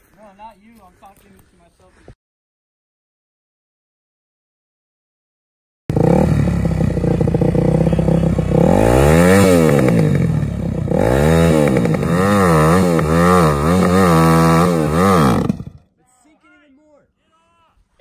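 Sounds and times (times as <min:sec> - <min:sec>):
dirt bike engine revving: 0:05.9 - 0:15.9.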